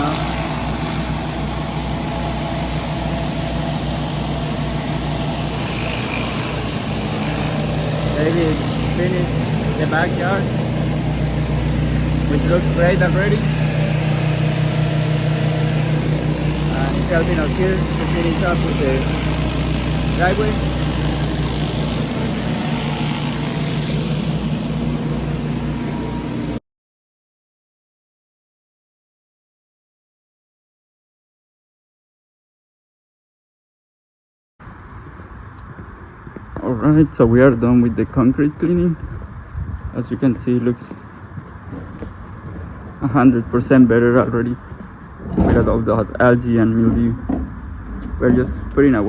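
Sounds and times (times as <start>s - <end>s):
pressure washer engine running: 0.0s - 26.6s
water jets hissing on concrete: 0.0s - 26.6s.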